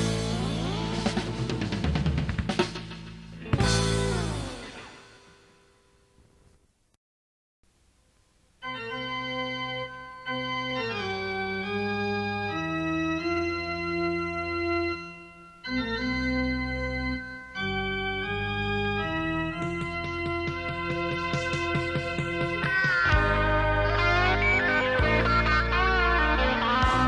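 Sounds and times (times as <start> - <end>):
other instruments: 0.0 - 5.4
slow organ chords: 8.6 - 27.0.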